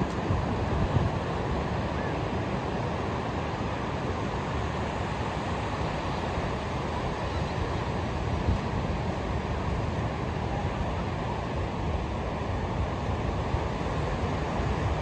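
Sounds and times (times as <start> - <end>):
ocean surf on a beach: 0.0 - 15.0.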